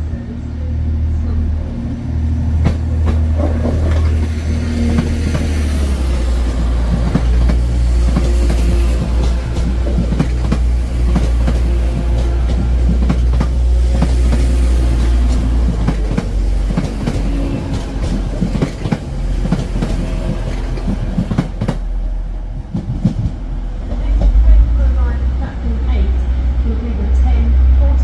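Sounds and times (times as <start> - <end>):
low steady train rumble: 0.0 - 28.0
train wheels clattering: 2.6 - 21.9.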